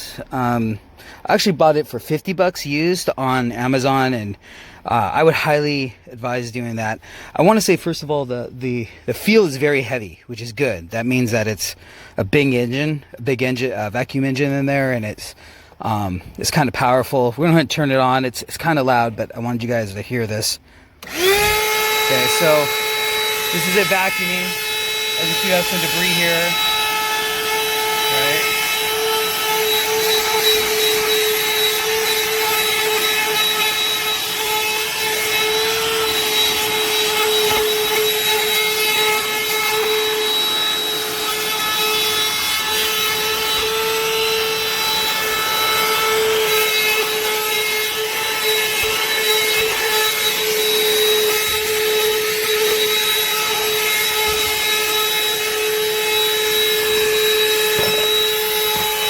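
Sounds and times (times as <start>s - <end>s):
handheld vacuum motor whine: 21.0s - 59.0s.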